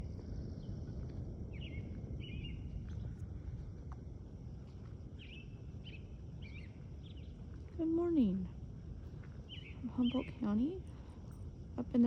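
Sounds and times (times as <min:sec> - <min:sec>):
steady low rumble: 0:00.0 - 0:12.0
birds chirping: 0:09.4 - 0:10.8.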